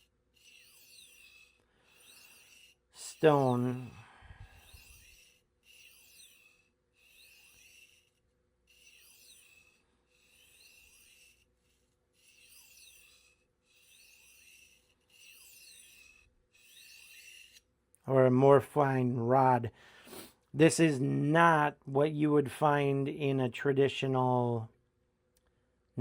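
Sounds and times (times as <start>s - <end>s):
knife rasping on sharpening rod: 0.0s - 17.7s.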